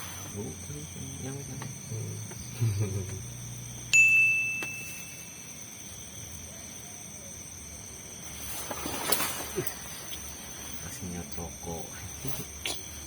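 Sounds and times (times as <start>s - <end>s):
high ringing ding: 3.9s - 5.6s.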